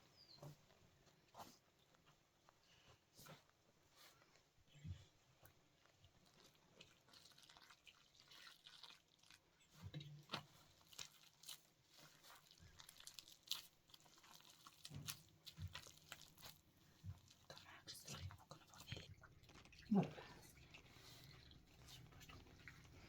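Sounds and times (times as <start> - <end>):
small clicks and crackles: 5.3 - 23.0.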